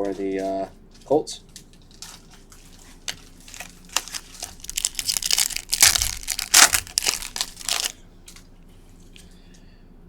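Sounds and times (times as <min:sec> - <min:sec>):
plastic wrapper crinkling: 0:01.8 - 0:08.4.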